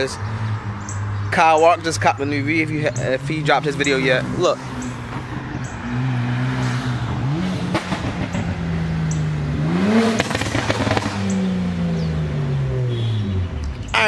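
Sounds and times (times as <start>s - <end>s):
car engine revving: 0.0s - 14.0s
sharp exhaust pops: 6.5s - 12.1s.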